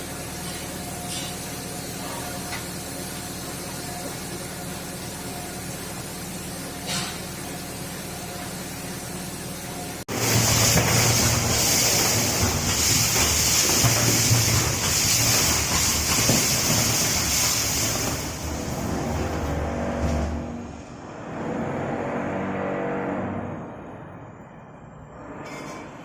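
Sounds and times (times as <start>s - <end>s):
machine running with hiss: 0.0s - 20.7s.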